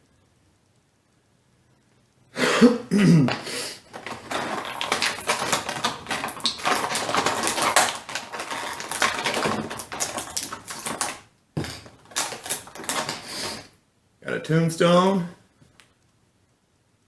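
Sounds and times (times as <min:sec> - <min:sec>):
plastic packaging crinkling: 0:02.8 - 0:13.7.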